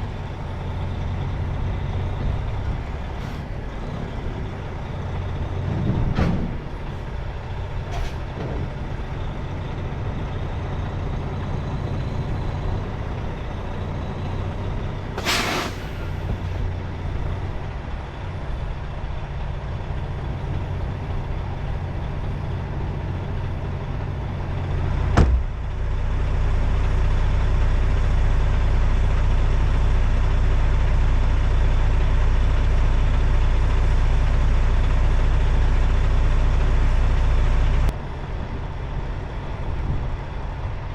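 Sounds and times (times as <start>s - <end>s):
truck diesel engine running: 0.0s - 40.9s
air hissing: 15.2s - 16.2s.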